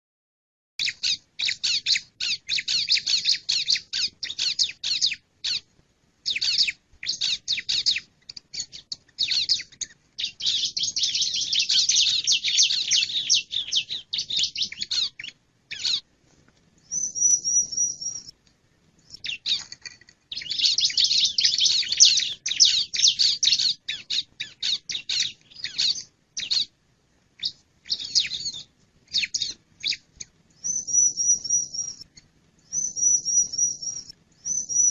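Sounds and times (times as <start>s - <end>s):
bird sharp high chirps: 0.8s - 16.1s, 16.8s - 18.4s, 19.0s - 26.7s, 27.4s - 34.9s.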